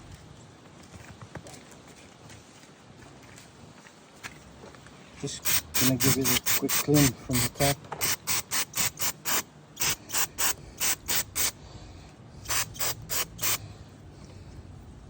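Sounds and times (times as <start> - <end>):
spray bursts: 5.3 - 11.6, 12.4 - 13.6.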